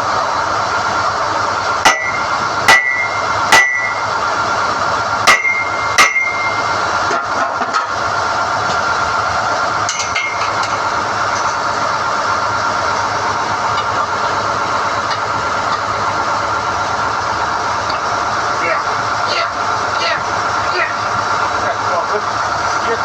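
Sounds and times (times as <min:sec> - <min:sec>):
drilling rig running: 0:00.0 - 0:23.0
ringing metal clangs: 0:01.9 - 0:04.0, 0:05.3 - 0:06.6.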